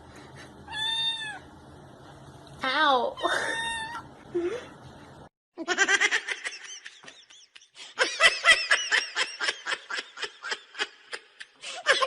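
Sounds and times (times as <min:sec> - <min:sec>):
person laughing hard: 0:05.6 - 0:12.0.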